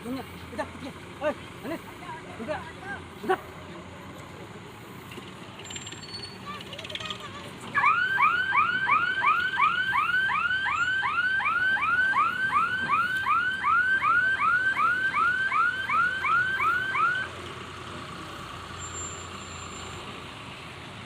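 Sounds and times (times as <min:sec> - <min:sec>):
vehicle alarm rising chirps: 0:05.6 - 0:06.6, 0:07.8 - 0:17.3.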